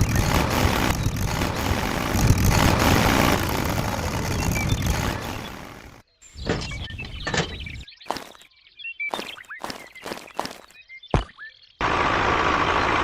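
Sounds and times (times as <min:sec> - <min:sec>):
tractor engine rumbling: 0:00.0 - 0:07.9, 0:11.8 - 0:13.0.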